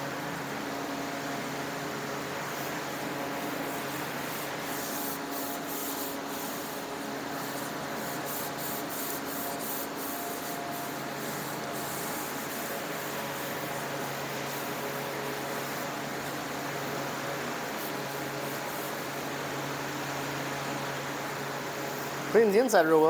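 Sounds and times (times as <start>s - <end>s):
steady machine hum: 18.9s - 23.0s.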